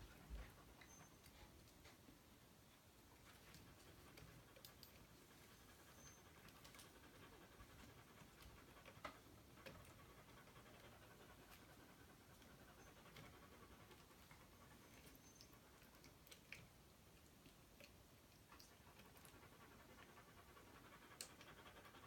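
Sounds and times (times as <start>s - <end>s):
small dog panting: 0.0s - 22.0s.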